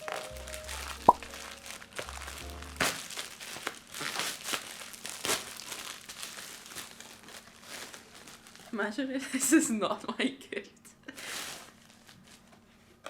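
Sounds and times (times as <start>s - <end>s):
background music with bass: 0.0s - 2.9s
gift wrapping crinkling: 0.0s - 8.9s.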